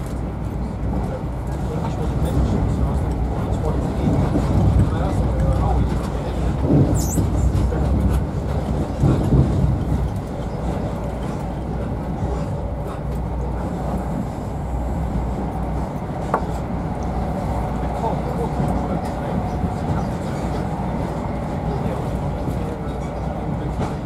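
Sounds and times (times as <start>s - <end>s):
train wheels rumbling on rails: 0.0s - 24.0s
brief high squeak: 7.0s - 7.2s.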